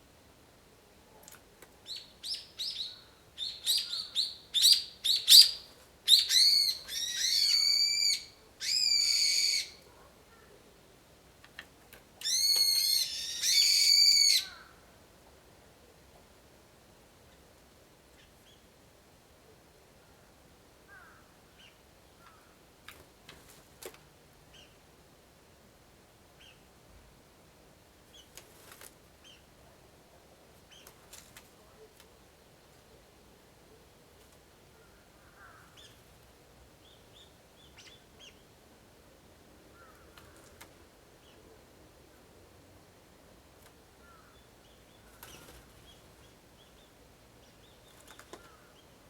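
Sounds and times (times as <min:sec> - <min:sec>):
low steady hiss: 0:00.0 - 0:49.0
faint high bird calls: 0:01.8 - 0:10.6, 0:12.2 - 0:14.8, 0:34.8 - 0:36.1, 0:44.0 - 0:49.0.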